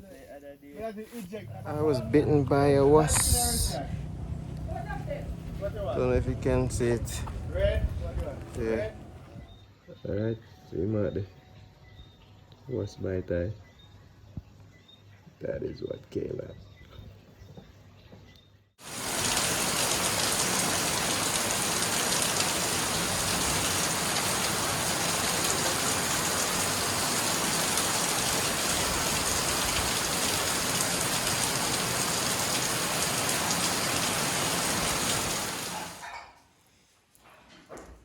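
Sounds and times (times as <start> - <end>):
rain falling: 1.4 - 9.5, 18.8 - 36.0.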